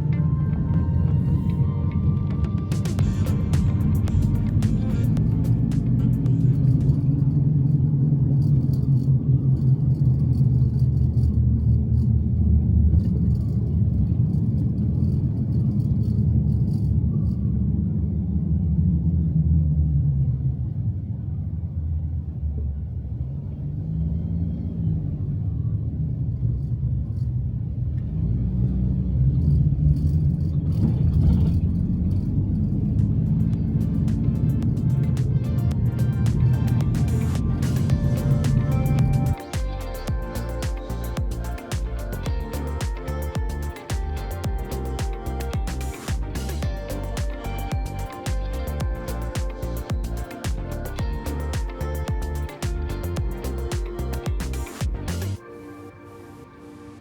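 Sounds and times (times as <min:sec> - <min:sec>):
car engine and road rumble: 0:00.0 - 0:55.4.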